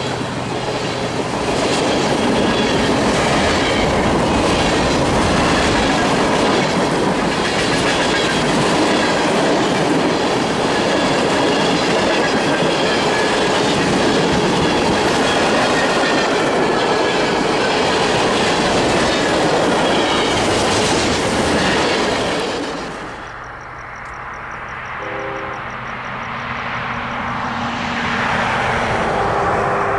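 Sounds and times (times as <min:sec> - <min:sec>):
train wheels clattering: 0:00.0 - 0:23.6.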